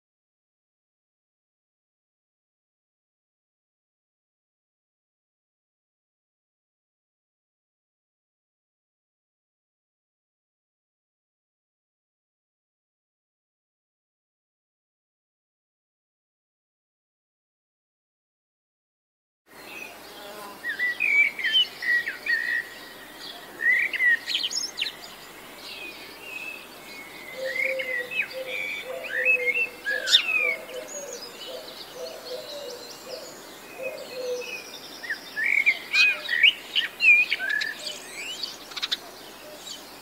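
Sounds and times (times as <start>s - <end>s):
songbirds chirping and whistling: 19.6s - 40.0s
low wavering bird call: 27.2s - 34.6s.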